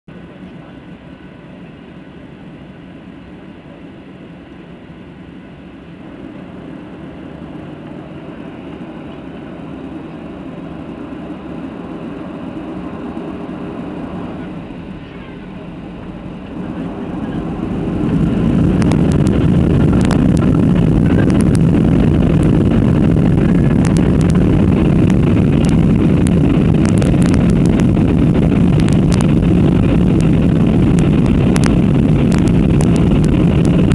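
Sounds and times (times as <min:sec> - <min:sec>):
aircraft engines roaring: 0:00.1 - 0:33.9
rattles and clicks: 0:18.0 - 0:33.9.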